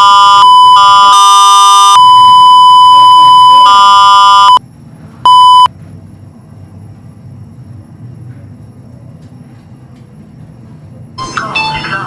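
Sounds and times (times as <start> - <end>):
lift electronic beep: 0.0 - 4.6, 5.3 - 5.7.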